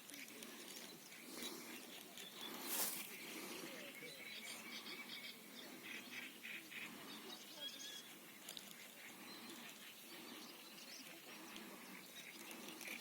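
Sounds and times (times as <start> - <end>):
faint birds chirping: 0.0 - 13.0.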